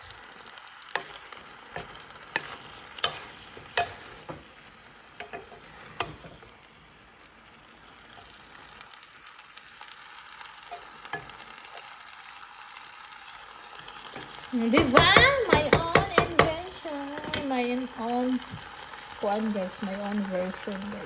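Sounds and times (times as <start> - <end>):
vegetables sizzling in a pan: 0.0 - 21.0
utensil clicking against pan: 0.9 - 4.4, 5.2 - 6.3, 13.8 - 17.6.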